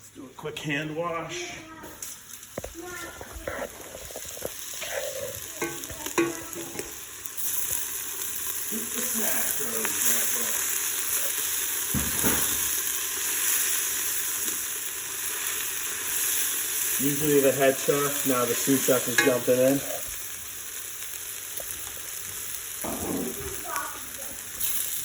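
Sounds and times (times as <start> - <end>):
vegetables sizzling in oil: 1.7 - 25.0.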